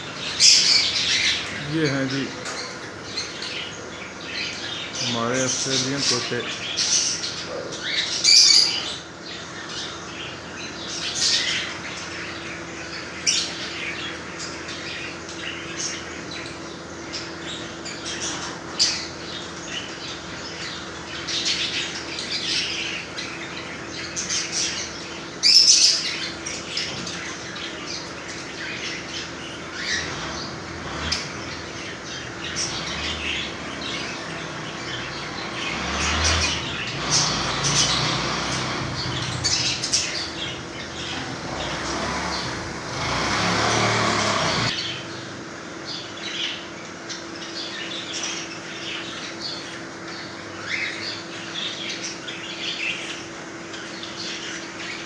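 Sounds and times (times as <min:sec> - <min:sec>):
parrots squawking and chirping: 0:00.0 - 0:16.4, 0:17.1 - 0:45.0
wing flapping: 0:29.2 - 0:44.8.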